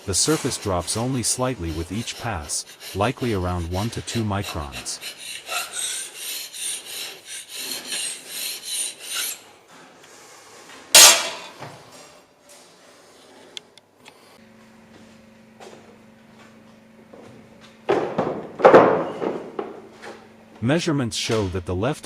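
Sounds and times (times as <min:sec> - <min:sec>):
hand scraper scraping metal: 0:00.0 - 0:09.5, 0:11.0 - 0:11.5.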